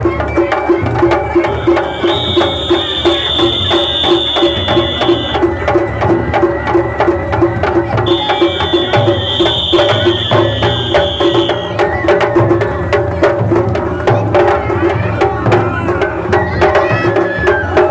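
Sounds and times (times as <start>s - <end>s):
festival drums: 0.0s - 17.9s
high flute note: 1.4s - 5.4s, 8.1s - 11.8s.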